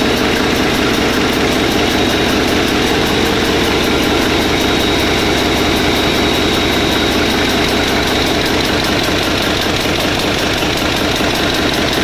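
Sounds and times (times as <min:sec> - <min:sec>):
generator engine running: 0:00.0 - 0:12.0
thin high whine: 0:01.2 - 0:08.7.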